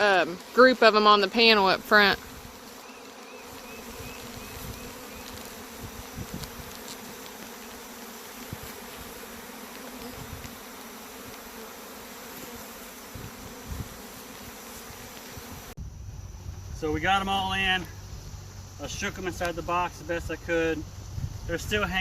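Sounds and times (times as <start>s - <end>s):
bee swarm buzzing: 0.0s - 16.7s.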